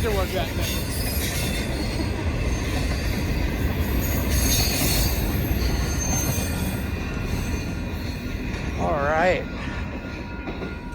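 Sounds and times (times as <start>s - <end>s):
train wheels rumbling on rail: 0.0s - 10.9s
high-pitched wheel squeals: 0.6s - 8.4s.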